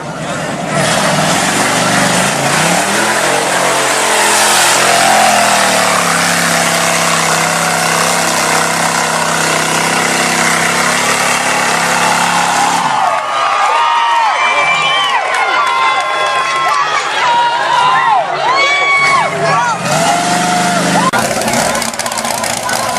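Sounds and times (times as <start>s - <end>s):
truck engine revving hard: 0.0s - 13.3s, 19.0s - 22.9s.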